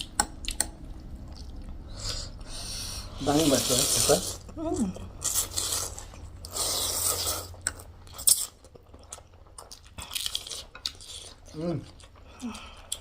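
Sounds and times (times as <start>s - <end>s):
chewing and biting: 4.9s - 13.0s.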